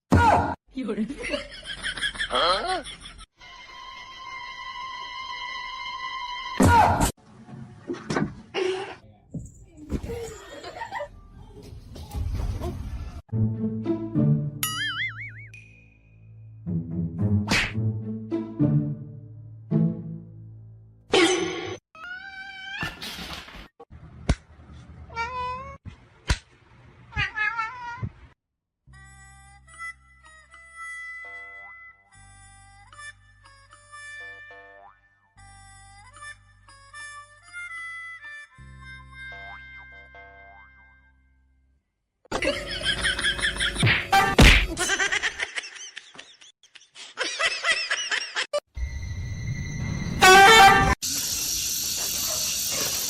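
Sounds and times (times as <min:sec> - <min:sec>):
people laughing: 0:01.2 - 0:03.3, 0:10.0 - 0:11.1, 0:42.4 - 0:43.9, 0:44.7 - 0:48.6
music: 0:03.4 - 0:06.6, 0:13.3 - 0:14.7, 0:16.3 - 0:20.9, 0:28.9 - 0:41.6
cat meowing: 0:27.1 - 0:28.1.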